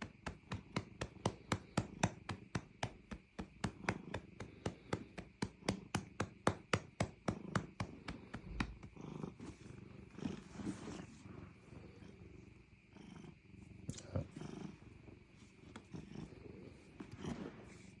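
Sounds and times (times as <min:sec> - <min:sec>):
hand patting a cat: 0:00.0 - 0:09.0
cat purring: 0:00.0 - 0:18.0.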